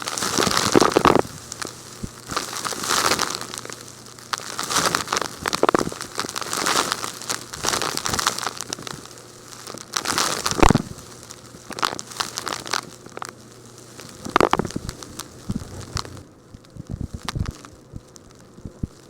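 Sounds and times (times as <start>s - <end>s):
rock-like material crunching: 14.2s - 16.3s.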